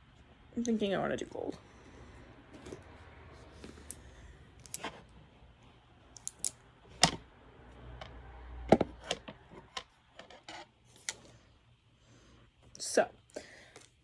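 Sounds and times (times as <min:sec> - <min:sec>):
makeup items clicking on hard surface: 0:06.2 - 0:07.2.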